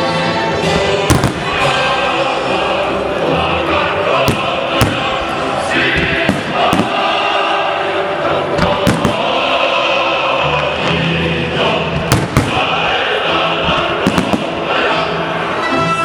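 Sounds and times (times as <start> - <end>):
choral music: 0.0 - 16.0
fireworks bangs: 0.7 - 1.8, 4.2 - 7.4, 8.5 - 9.4, 12.0 - 12.9, 13.6 - 14.9.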